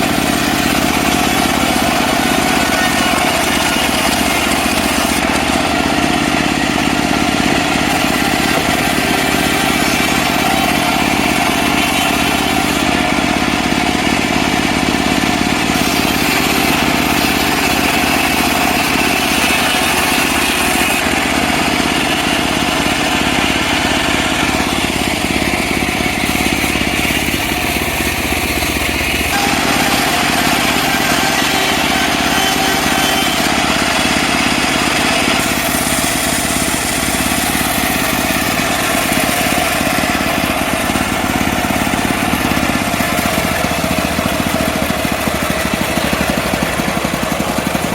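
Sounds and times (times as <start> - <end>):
sawmill engine sawing log: 0.0 - 47.9.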